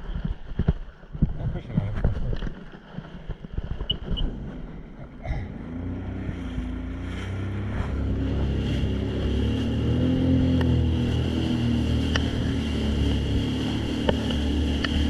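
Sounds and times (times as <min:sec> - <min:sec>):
jet ski engine drone: 0:04.1 - 0:15.0.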